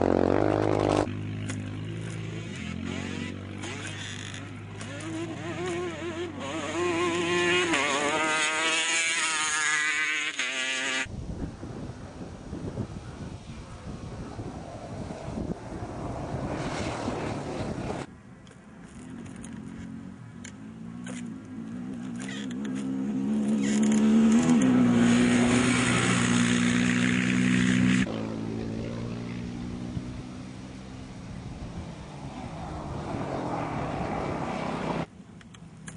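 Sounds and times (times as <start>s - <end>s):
engine revving hard: 2.2s - 11.1s
wind noise on microphone: 11.0s - 18.1s, 23.5s - 35.1s
tyres on gravel: 16.6s - 27.0s.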